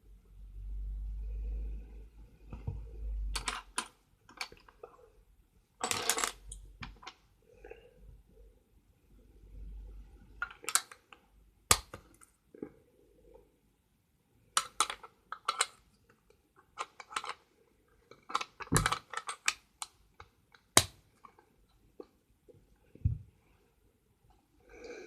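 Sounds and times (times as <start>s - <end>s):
plastic bricks clicking and clattering: 2.6s - 4.9s, 5.8s - 7.2s, 10.4s - 12.3s, 14.6s - 15.9s, 16.6s - 21.4s.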